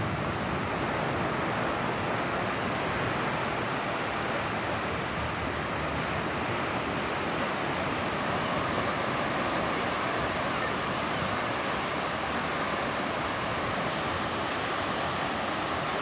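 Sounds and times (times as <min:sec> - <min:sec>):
sea surf: 0:00.0 - 0:16.0
wind: 0:00.0 - 0:16.0.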